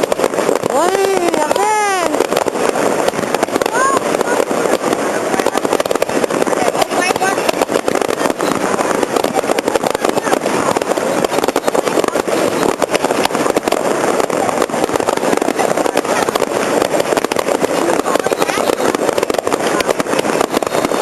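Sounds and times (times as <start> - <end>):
fireworks crackling and popping: 0.0 - 21.0.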